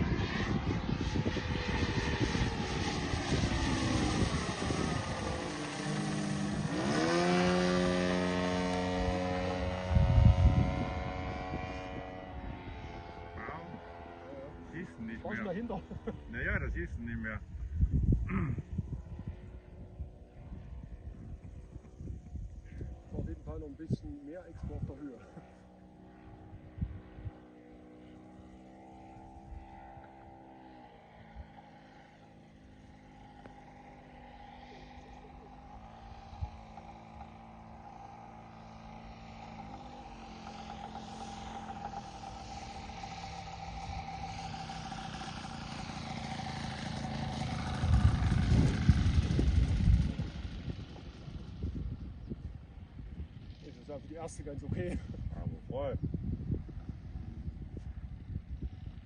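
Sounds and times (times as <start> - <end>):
model plane engine running: 0.0 - 59.0.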